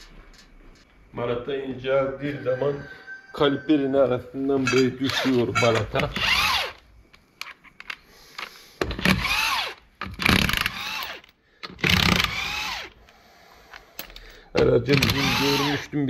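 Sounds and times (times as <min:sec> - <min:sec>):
power tool motor whirring: 0:06.1 - 0:06.8, 0:08.9 - 0:11.2, 0:11.8 - 0:13.0, 0:15.0 - 0:15.8
metal parts clicking and knocking: 0:07.4 - 0:09.4, 0:10.0 - 0:13.0, 0:13.7 - 0:15.5.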